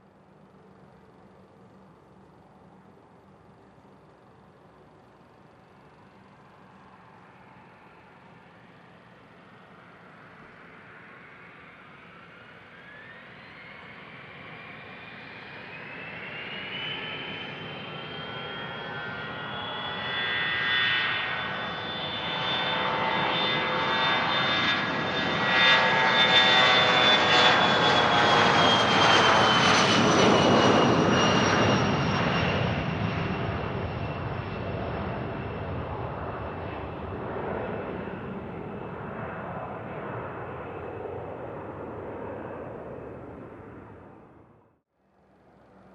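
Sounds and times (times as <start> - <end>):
jet engines whining: 9.8 - 44.6.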